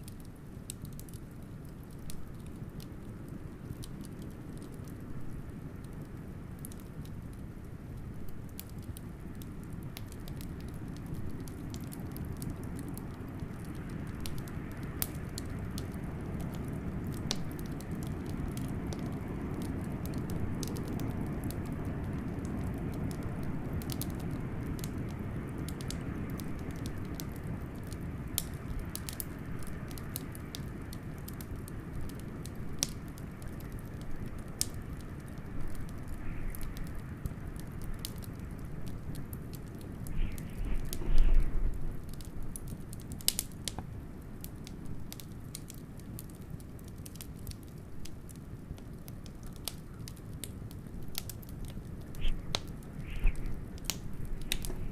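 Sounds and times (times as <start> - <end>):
wood fire crackling and popping: 0.0 - 54.9
howling blizzard wind: 1.0 - 44.7, 48.4 - 54.9.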